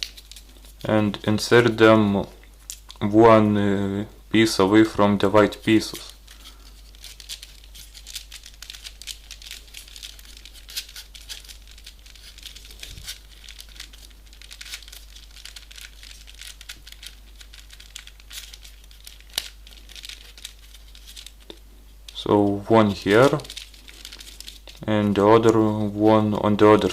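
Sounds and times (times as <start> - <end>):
folded paper rustling and crinkling: 5.3 - 21.5, 22.7 - 26.9
sharp paper click: 5.9 - 21.6.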